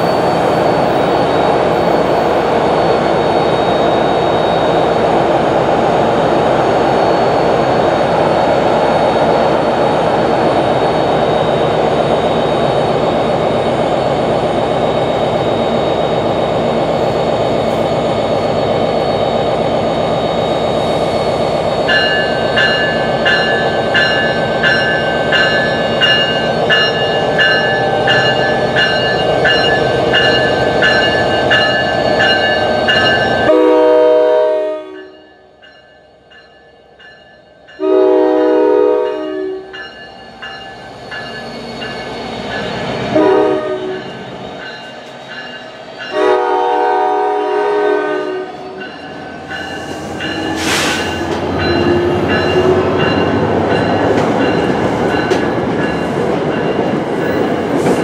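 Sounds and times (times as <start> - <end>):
electric train roaring: 0.0 - 58.0
train bell ringing: 21.7 - 33.7, 34.8 - 46.7, 48.1 - 57.7
multi-note air horn blasts: 33.5 - 35.0, 37.8 - 39.6, 43.2 - 44.0, 46.2 - 48.5.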